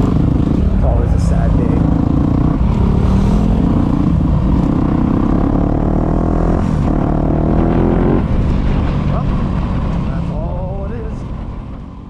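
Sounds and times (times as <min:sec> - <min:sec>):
dirt bike engine accelerating: 0:00.0 - 0:11.8.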